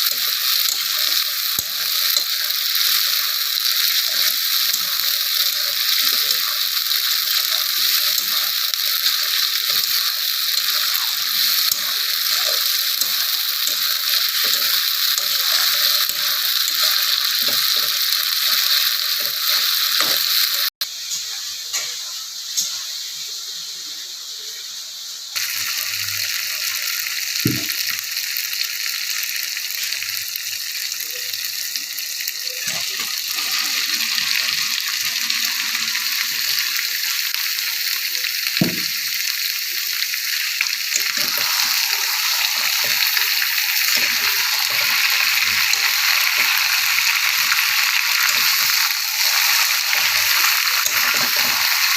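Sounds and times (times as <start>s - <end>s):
curry sizzling in hot oil: 0.0s - 51.9s.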